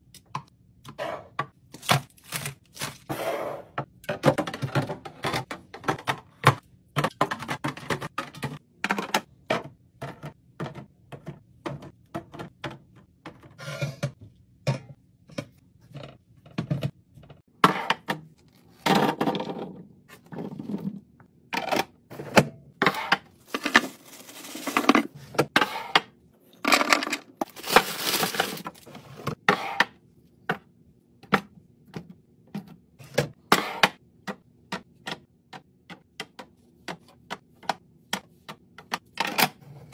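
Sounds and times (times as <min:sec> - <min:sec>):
packaging rustling and tearing: 0:01.8 - 0:03.1, 0:23.5 - 0:25.0, 0:27.4 - 0:28.9
containers clicking and knocking: 0:04.1 - 0:16.9.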